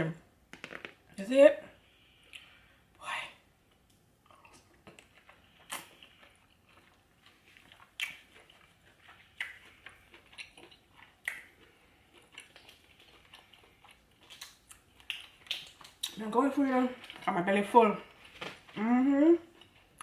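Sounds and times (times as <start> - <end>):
wet chewing: 4.3 - 16.2.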